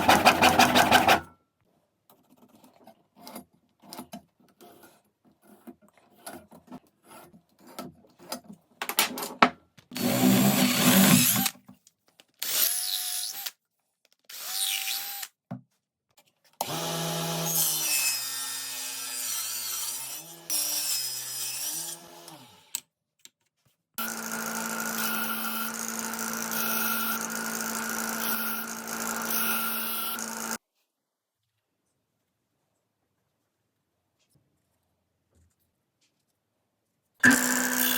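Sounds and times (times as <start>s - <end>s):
power tools cutting wood: 0.0s - 1.2s, 10.0s - 11.5s, 16.6s - 22.7s, 24.0s - 30.6s, 37.2s - 37.9s.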